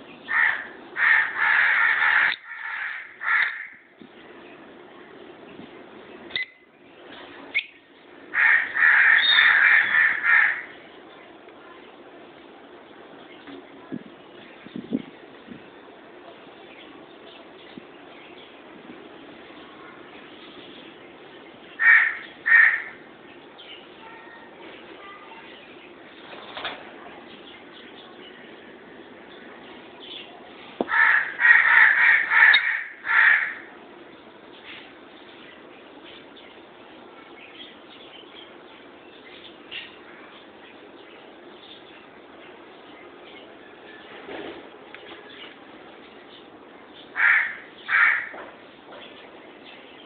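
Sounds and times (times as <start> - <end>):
lovebirds chirping: 0.0 - 50.0
lovebirds screeching: 0.1 - 3.8, 7.5 - 10.8, 21.7 - 23.9, 30.9 - 33.7, 46.2 - 50.0
shrill bird call: 8.4 - 10.8, 30.9 - 33.7, 47.1 - 48.4.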